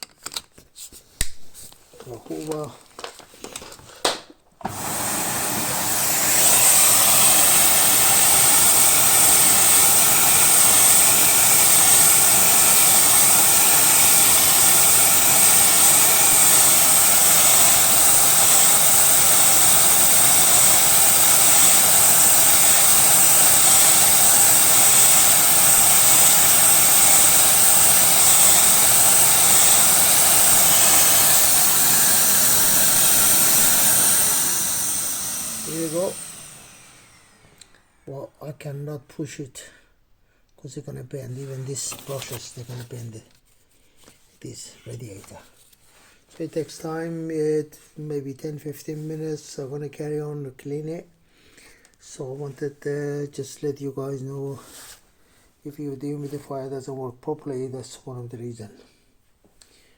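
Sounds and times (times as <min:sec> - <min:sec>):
vacuum cleaner motor whining: 0:04.6 - 0:38.1.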